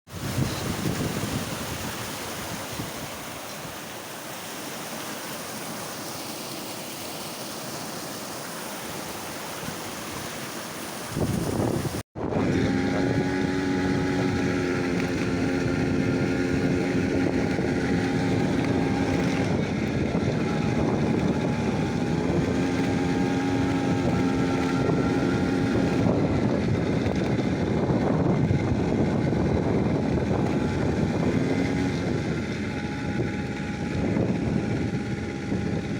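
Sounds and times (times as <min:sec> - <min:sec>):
steady rushing noise: 0:00.1 - 0:14.8.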